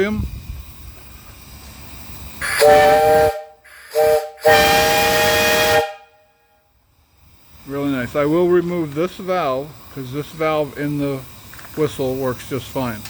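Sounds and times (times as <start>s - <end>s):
steam hiss: 0.0s - 13.0s
steam whistle chord: 2.4s - 6.4s.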